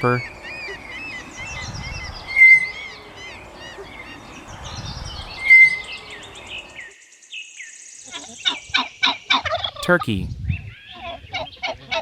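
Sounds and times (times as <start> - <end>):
birds chirping: 0.0 - 6.9.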